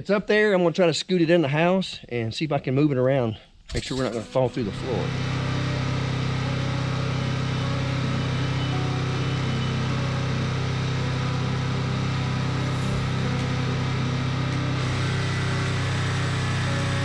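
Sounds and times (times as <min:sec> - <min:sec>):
tractor engine running: 0:04.6 - 0:17.0.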